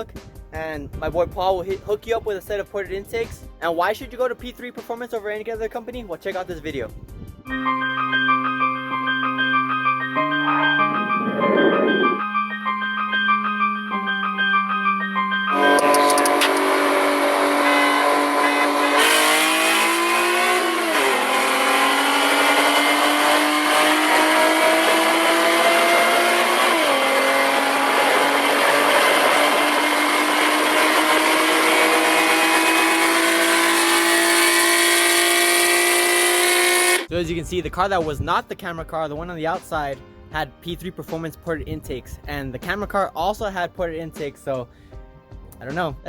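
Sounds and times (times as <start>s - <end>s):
car engine at full throttle: 10.8s - 12.2s, 15.6s - 37.1s.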